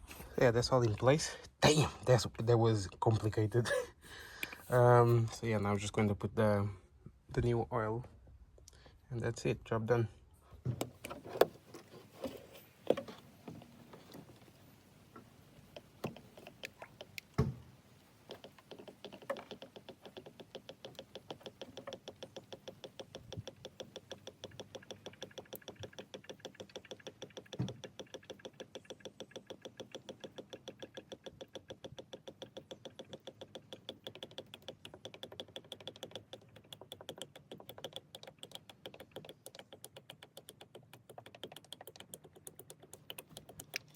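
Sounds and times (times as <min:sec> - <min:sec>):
knocks and clicks: 0:18.3 - 0:43.9.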